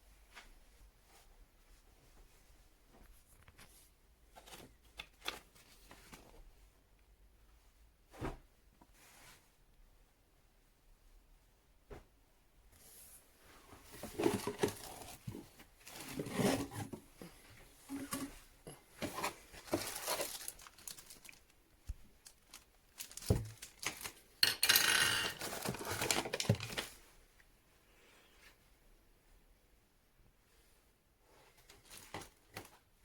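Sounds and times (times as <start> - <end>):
packaging crinkling and tearing: 19.6 - 21.6, 22.2 - 24.2, 25.2 - 27.0.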